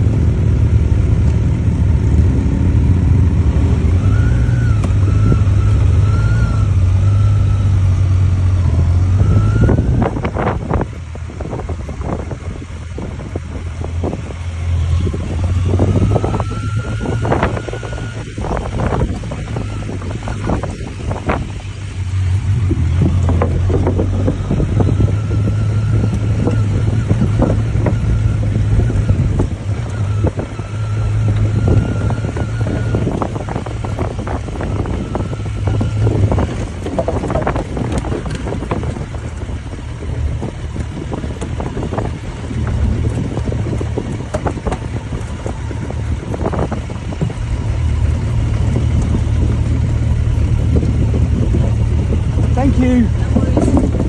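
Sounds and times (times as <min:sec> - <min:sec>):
motorcycle engine running: 0:00.0 - 0:54.0
wind buffeting microphone: 0:00.0 - 0:54.0
knocks and rattles: 0:35.6 - 0:39.8.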